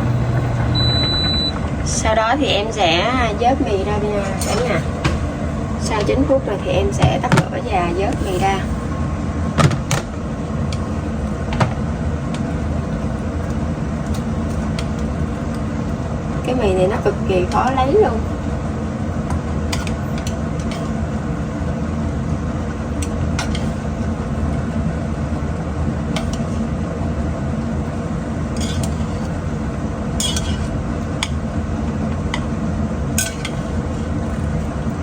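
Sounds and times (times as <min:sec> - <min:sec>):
low mechanical hum: 0:00.0 - 0:35.0
utensil clinking on metal pot: 0:28.6 - 0:29.3, 0:30.2 - 0:31.4, 0:33.2 - 0:33.8.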